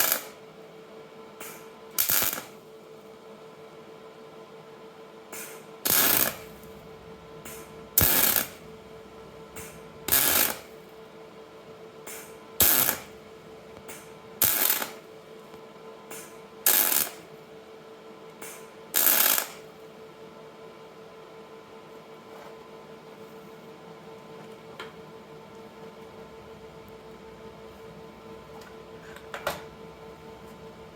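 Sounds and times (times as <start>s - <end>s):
arc welding bursts: 0.0s - 0.4s, 1.4s - 2.6s, 5.4s - 15.1s, 16.1s - 17.3s, 18.4s - 19.6s.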